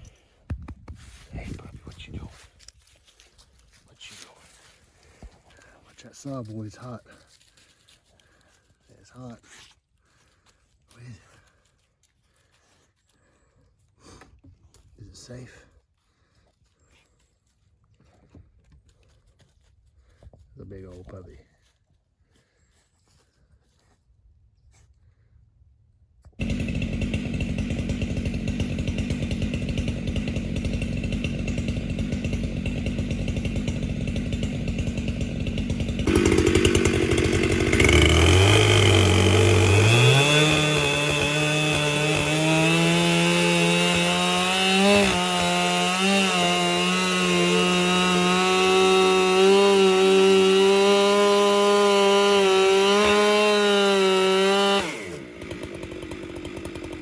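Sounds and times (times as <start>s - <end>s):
chainsaw revving: 26.4s - 57.0s.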